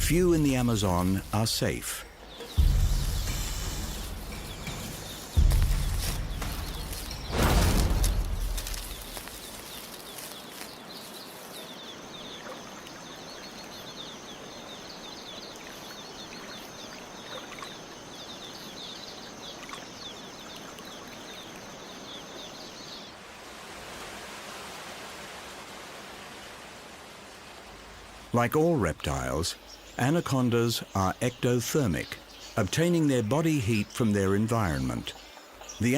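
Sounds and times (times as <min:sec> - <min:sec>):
rapid repeated chirps: 0:00.0 - 0:09.1
even hiss: 0:00.0 - 0:11.6.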